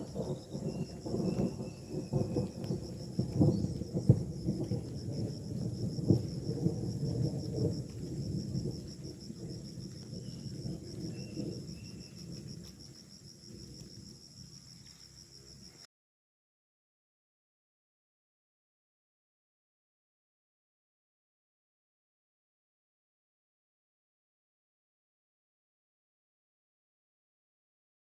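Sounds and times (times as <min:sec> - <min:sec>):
forest insects trilling: 0:00.0 - 0:15.9
uneven low rumble with crackles: 0:00.0 - 0:15.9.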